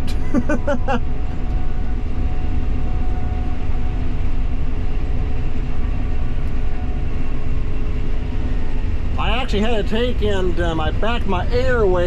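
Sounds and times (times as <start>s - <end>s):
combine harvester rumbling: 0.0s - 12.0s.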